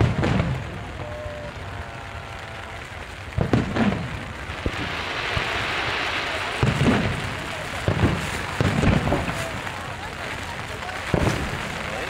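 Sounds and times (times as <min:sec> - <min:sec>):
deep firework booms: 0:00.0 - 0:12.0
steady rain hiss: 0:00.0 - 0:12.0
sharp firework bang: 0:03.4 - 0:09.5, 0:11.1 - 0:12.0.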